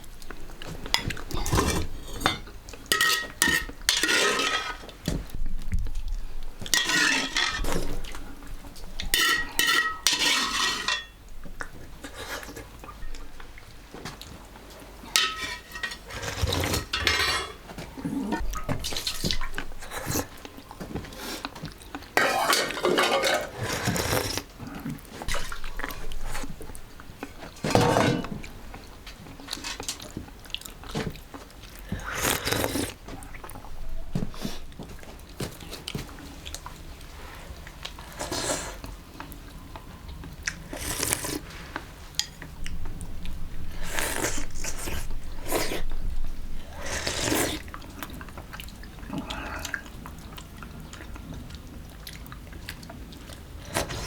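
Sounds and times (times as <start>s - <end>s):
dishes and pots clattering: 0.9s - 5.2s, 6.6s - 8.1s, 9.1s - 11.2s, 15.1s - 19.6s, 22.2s - 24.0s, 27.5s - 28.6s.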